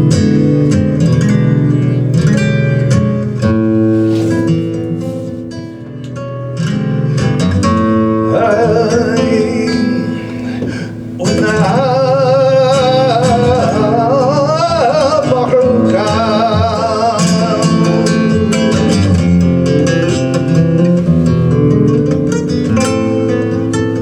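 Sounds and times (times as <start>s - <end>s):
acoustic flamenco guitar: 0.0s - 24.0s
person singing ornamented vocal: 8.3s - 17.6s.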